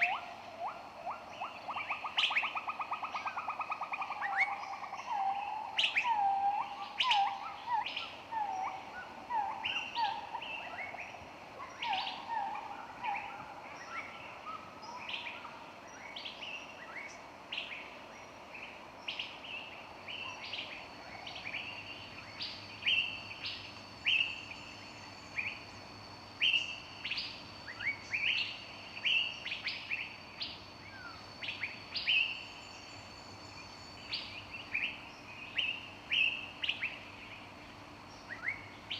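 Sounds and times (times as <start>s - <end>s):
thin steady high tone: 19.6s - 37.6s.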